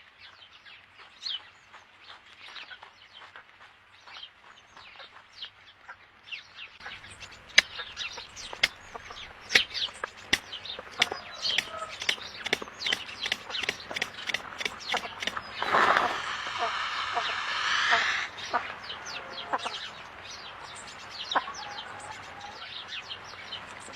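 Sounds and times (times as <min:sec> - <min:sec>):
sharp clicks: 0:07.0 - 0:16.1.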